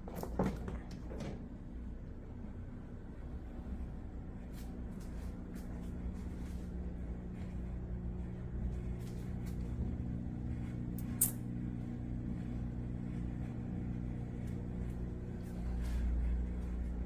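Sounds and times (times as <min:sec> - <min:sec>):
low electrical hum: 0:00.0 - 0:17.0
sharp click: 0:11.0 - 0:11.4.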